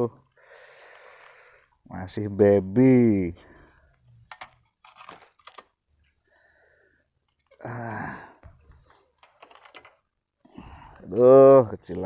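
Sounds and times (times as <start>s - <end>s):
man sighing: 7.5s - 8.5s, 10.5s - 11.2s
light clicks and handling noises: 8.4s - 10.1s.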